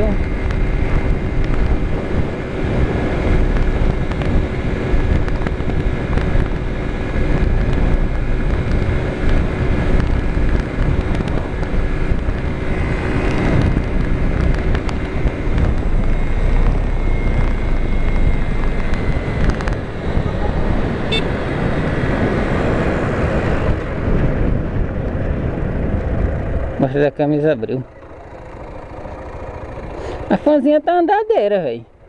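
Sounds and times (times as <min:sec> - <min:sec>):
wind buffeting microphone: 0:00.0 - 0:30.8
motorcycle engine running: 0:00.0 - 0:32.0
man talking: 0:26.8 - 0:27.9.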